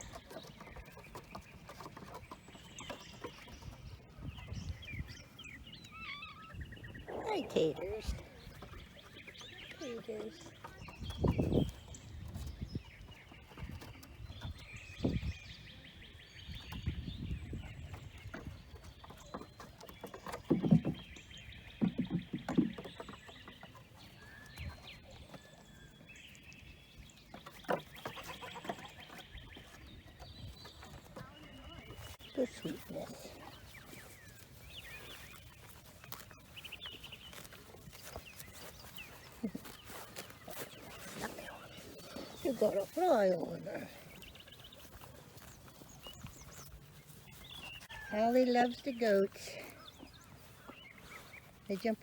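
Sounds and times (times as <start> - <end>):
farm animals moving about: 0.0 - 52.0
small birds chirping: 0.0 - 52.0
low animal call: 5.8 - 8.6
knocks and rustles: 16.5 - 25.6.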